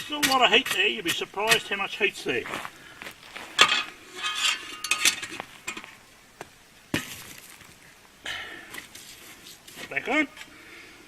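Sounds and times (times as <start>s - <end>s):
sharp metal clank: 3.6s - 5.4s.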